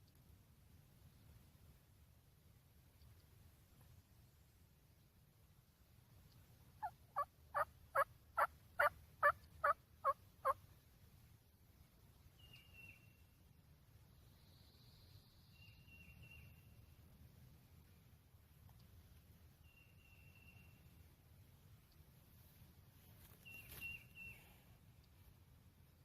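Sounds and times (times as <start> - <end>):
faint high bird chirps: 12.2 - 13.4, 14.2 - 17.0, 19.5 - 21.1, 23.2 - 25.3.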